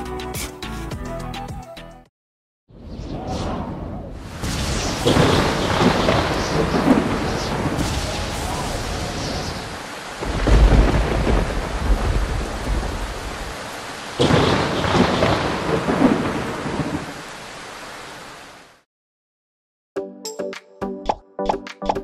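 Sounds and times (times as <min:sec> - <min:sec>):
sharp thunderclap: 0:03.0 - 0:17.1
steady rain: 0:04.2 - 0:18.8
low rumble of thunder: 0:04.4 - 0:17.2.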